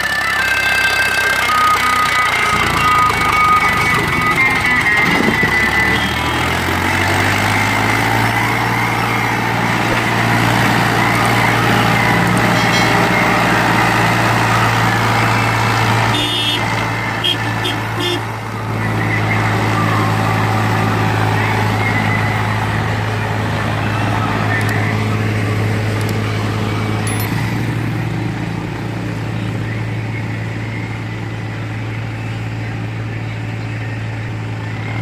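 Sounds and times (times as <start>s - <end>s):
tractor engine droning: 0.0s - 35.0s
higher clatter: 11.9s - 14.4s.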